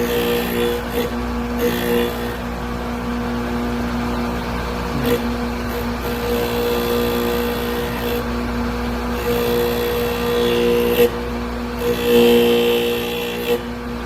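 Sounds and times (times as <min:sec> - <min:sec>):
drill bit grinding hiss: 0:00.0 - 0:02.4
grinder motor hum: 0:00.0 - 0:14.0.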